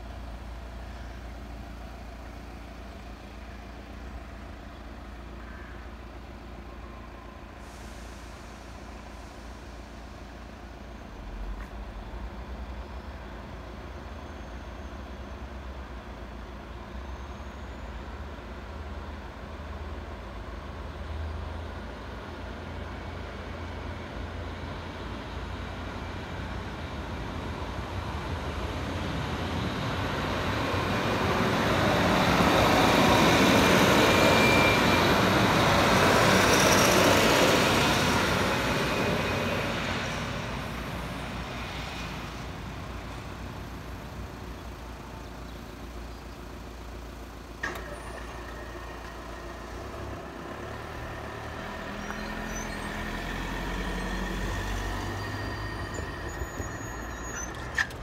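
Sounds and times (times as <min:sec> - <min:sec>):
crossing barriers whining: 0:00.0 - 0:58.0
diesel train passing: 0:00.0 - 0:58.0
crossing barrier clunk: 0:47.6 - 0:49.5, 0:55.0 - 0:58.0.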